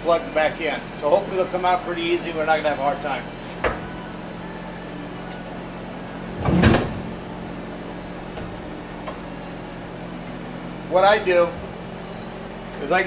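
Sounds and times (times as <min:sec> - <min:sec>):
steady low hum: 0:00.0 - 0:13.0
loud clunk: 0:06.4 - 0:07.2.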